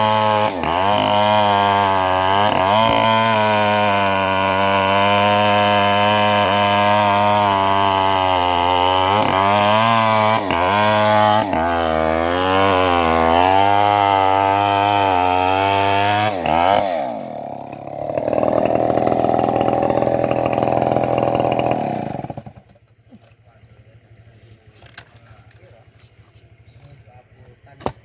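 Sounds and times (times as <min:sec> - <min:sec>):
bandsaw mill sawing log: 0:00.0 - 0:22.8.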